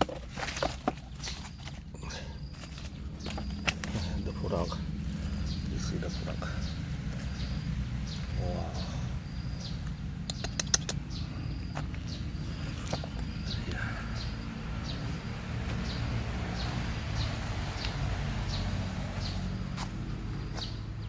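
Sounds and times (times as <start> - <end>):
bird chirping: 0.0 - 21.0
steady low rumble: 1.1 - 21.0
sharp clicks: 9.8 - 11.2.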